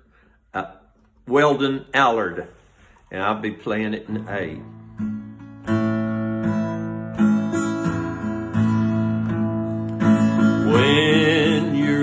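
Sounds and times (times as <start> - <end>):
acoustic guitar chords ringing: 4.0 - 12.0.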